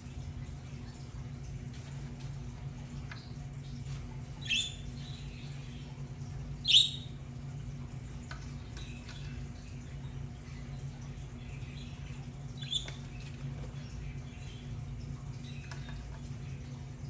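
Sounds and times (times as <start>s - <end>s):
steady low hum: 0.0s - 17.0s
budgerigars chirping: 4.4s - 5.2s, 6.6s - 7.1s, 12.6s - 13.1s.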